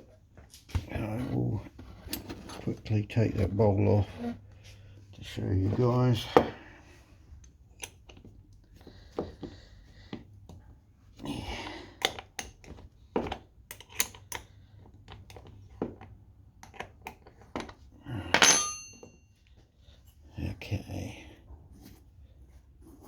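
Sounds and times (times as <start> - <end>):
ringing metal clink: 18.3 - 19.3.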